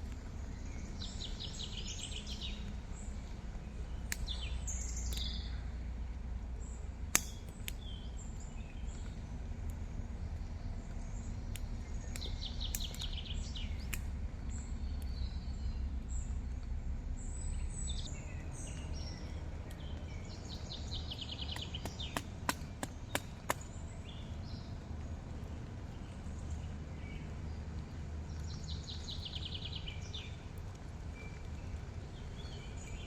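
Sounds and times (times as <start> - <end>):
wild birds chirping: 0.0 - 5.9, 6.6 - 33.0
low outdoor rumble: 0.0 - 33.0.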